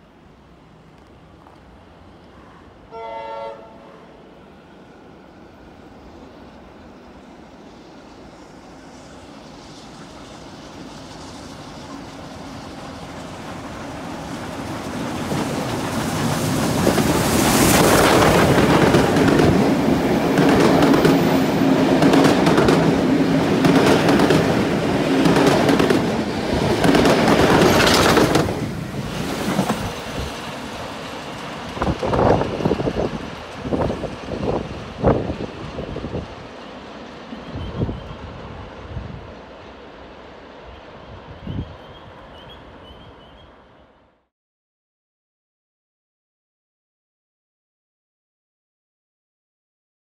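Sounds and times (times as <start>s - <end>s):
steady train hum: 0.0s - 44.3s
train wheels rumbling on rails: 6.2s - 43.4s.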